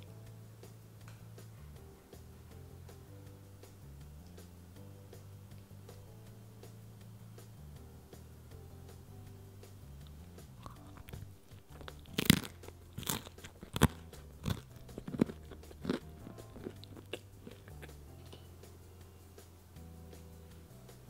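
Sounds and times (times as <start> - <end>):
crunchy chewing: 10.0 - 18.7.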